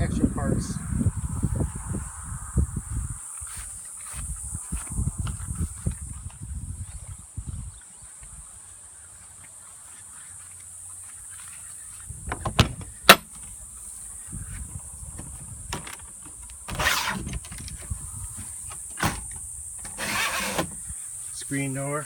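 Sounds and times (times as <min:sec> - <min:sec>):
rustling and shuffling: 0:03.3 - 0:21.4
door latch clicks: 0:12.3 - 0:13.3.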